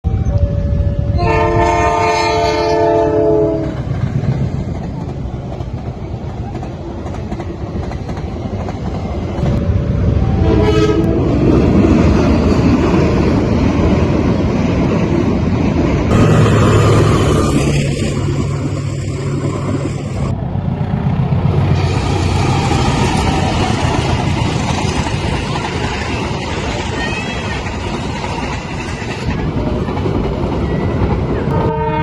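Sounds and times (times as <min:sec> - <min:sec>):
diesel locomotive engine rumble: 0:00.0 - 0:32.0
train horn: 0:00.3 - 0:03.8, 0:09.5 - 0:11.5, 0:31.5 - 0:32.0
train wheels clattering on rails: 0:03.6 - 0:09.7, 0:21.1 - 0:31.7.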